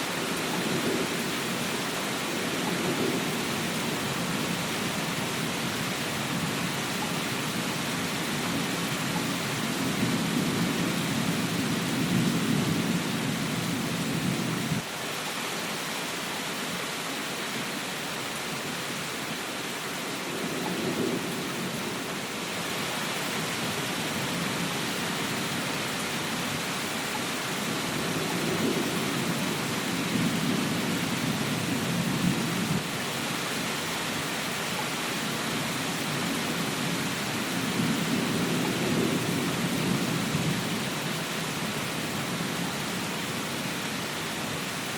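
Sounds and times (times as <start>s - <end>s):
rain hissing: 0.0s - 44.9s
low rolling thunder: 0.1s - 14.8s, 20.2s - 22.3s, 27.4s - 32.9s, 36.1s - 41.2s.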